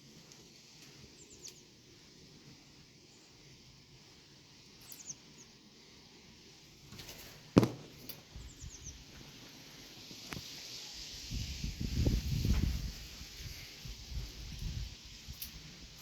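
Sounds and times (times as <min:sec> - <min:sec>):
bird chirping: 0:01.1 - 0:01.7, 0:04.8 - 0:05.6, 0:08.3 - 0:09.2.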